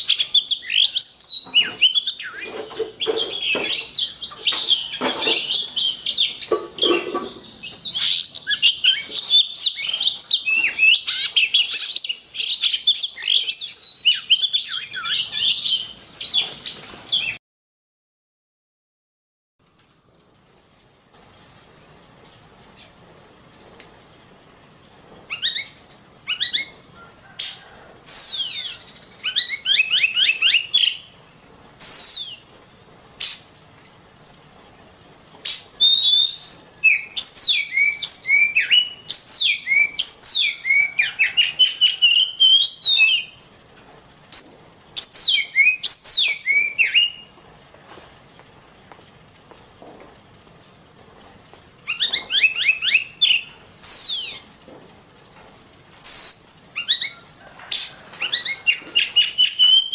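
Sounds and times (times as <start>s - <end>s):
bird singing whistles: 0.0s - 2.5s, 7.6s - 15.9s, 25.3s - 26.8s, 28.1s - 31.1s, 31.8s - 32.5s, 35.8s - 43.4s, 44.3s - 47.3s, 51.8s - 54.5s, 56.0s - 57.2s, 58.2s - 59.9s
faint steady high hiss: 19.6s - 59.9s.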